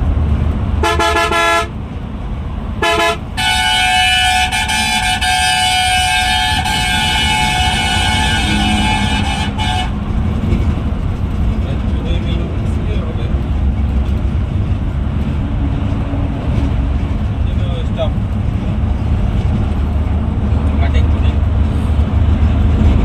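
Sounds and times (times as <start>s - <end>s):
moving bus drone: 0.0s - 23.0s
vehicle horn blasts: 0.8s - 1.8s, 2.8s - 10.2s.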